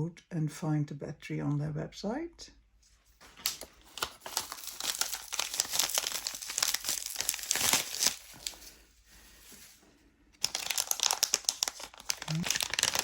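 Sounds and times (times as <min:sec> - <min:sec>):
packaging crinkling: 0:03.2 - 0:13.0.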